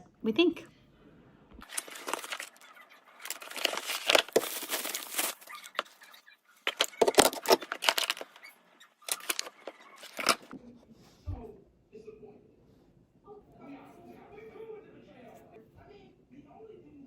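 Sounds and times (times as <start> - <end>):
packaging rustling and crinkling: 1.6 - 10.5.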